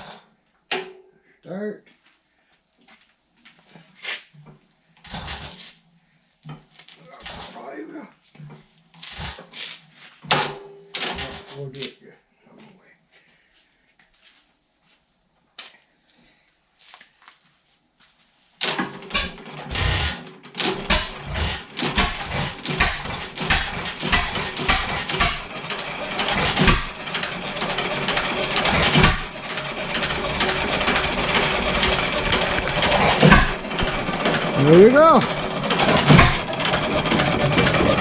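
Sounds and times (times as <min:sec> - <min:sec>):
engine clattering: 0:10.3 - 0:11.6, 0:18.6 - 0:38.0.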